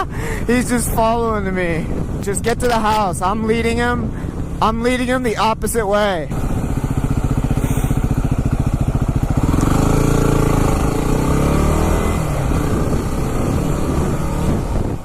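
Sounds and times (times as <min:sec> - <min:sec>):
wind rush: 0:00.0 - 0:15.0
motorcycle engine accelerating: 0:06.3 - 0:15.0.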